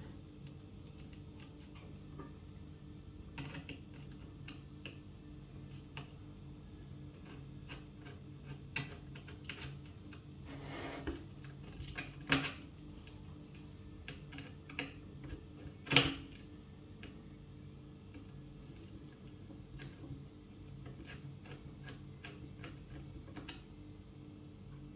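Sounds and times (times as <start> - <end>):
short scrape: 10.5 - 11.1.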